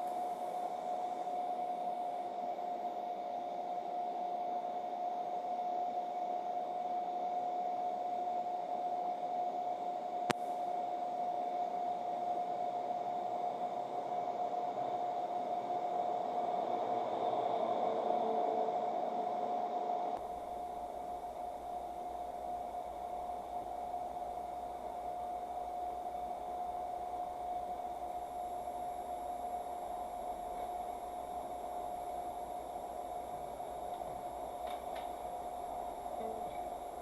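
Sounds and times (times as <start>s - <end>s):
line noise hiss: 0.0s - 37.0s
steady electronic tone: 11.7s - 37.0s.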